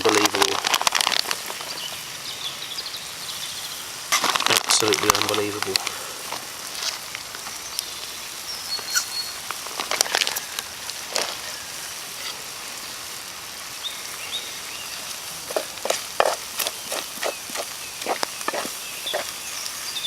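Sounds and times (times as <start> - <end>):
food sizzling in a frying pan: 0.0 - 20.0
stirring knocks and scrapes: 15.4 - 19.4.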